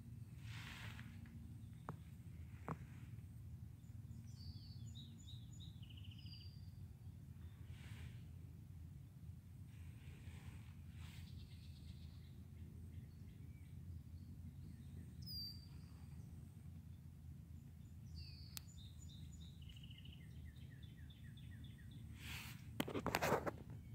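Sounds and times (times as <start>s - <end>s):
steady low rumble: 0.0s - 22.1s
songbirds calling: 0.0s - 23.9s
brief rustle: 22.2s - 23.9s.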